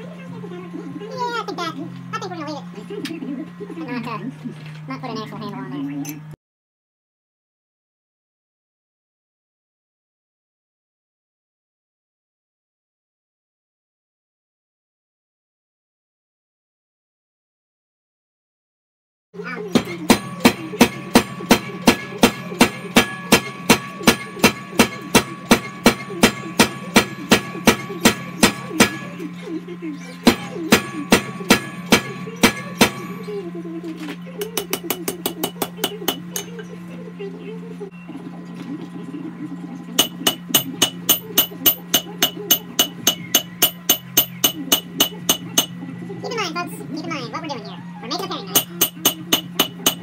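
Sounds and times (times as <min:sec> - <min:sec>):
steady low hum: 0:19.4 - 0:50.0
forging hammer blows on steel: 0:19.7 - 0:29.3, 0:30.2 - 0:33.3, 0:40.0 - 0:45.8, 0:48.6 - 0:50.0.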